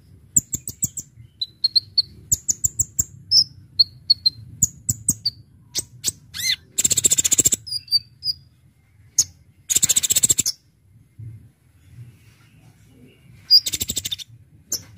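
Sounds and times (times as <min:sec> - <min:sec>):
faint low hum: 0:00.0 - 0:14.9
bird chirping and trilling: 0:00.4 - 0:10.7, 0:13.4 - 0:14.9.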